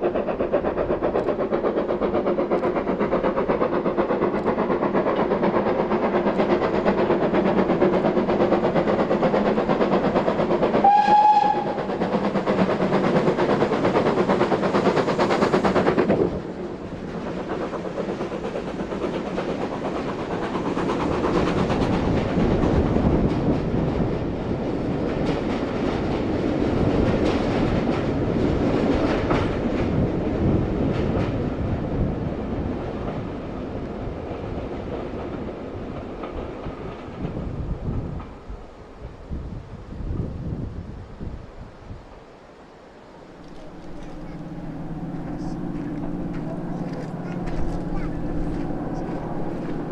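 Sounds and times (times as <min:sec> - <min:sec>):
train passing at speed: 0:00.0 - 0:38.5, 0:42.4 - 0:49.9
train horn: 0:10.8 - 0:12.0, 0:43.4 - 0:49.9
wheels clicking over rail joints: 0:43.4 - 0:49.9.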